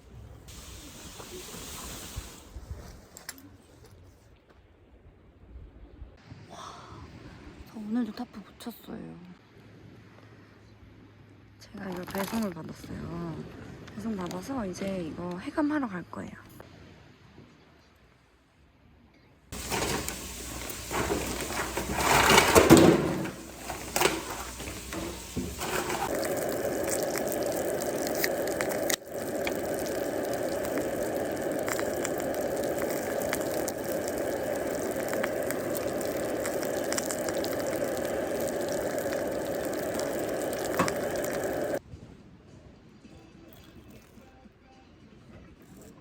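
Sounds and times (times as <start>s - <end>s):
tap water running into basin: 0.5s - 2.6s, 19.6s - 41.8s.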